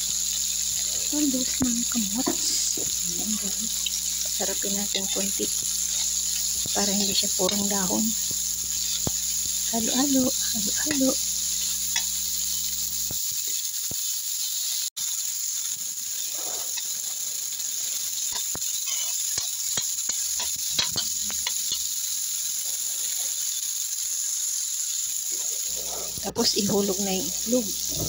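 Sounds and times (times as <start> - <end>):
vegetables sizzling in oil: 0.0 - 28.0
metal spoon scraping pan: 4.2 - 12.6, 18.2 - 21.9.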